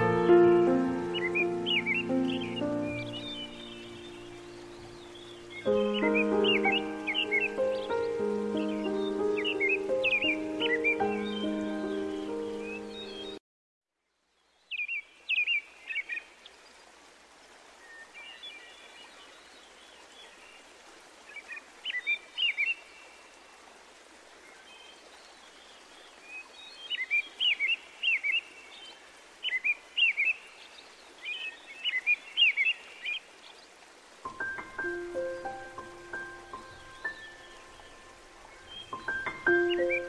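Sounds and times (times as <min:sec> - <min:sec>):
bird chirping: 0:00.0 - 0:13.4, 0:34.3 - 0:40.0.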